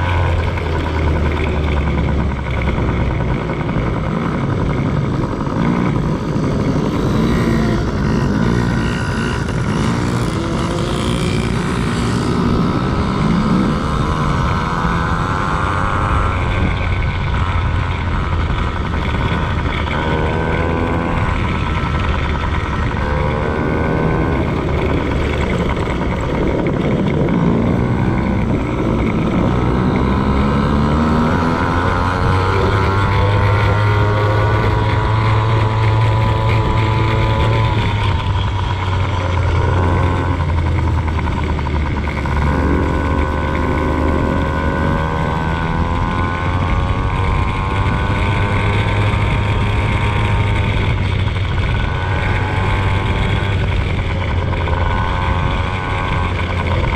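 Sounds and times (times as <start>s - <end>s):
dirt bike engine revving: 0.0s - 56.9s
low rumble: 0.0s - 56.9s.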